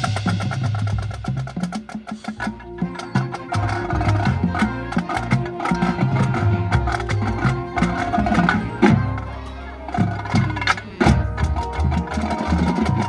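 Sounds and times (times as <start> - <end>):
dense percussion strikes: 0.0 - 13.0
marching band playing: 0.0 - 13.0.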